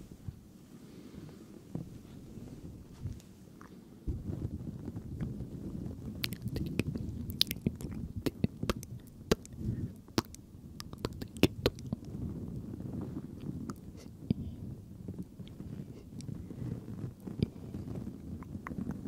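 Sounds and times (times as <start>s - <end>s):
low muffled noise: 0.0s - 19.0s
wet mouth clicks and smacks: 6.2s - 9.5s, 10.2s - 12.0s.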